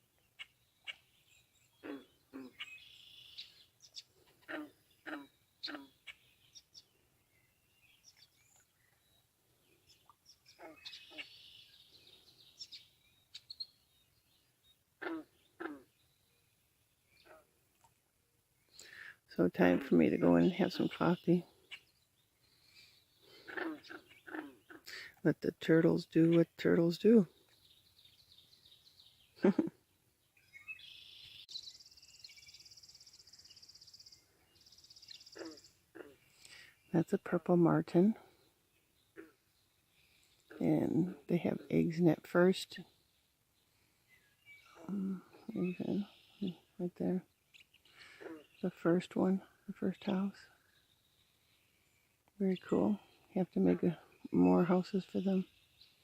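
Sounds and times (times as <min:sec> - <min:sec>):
birds chirping and singing: 0:00.2 - 0:17.4, 0:25.6 - 0:37.2, 0:42.2 - 0:56.0.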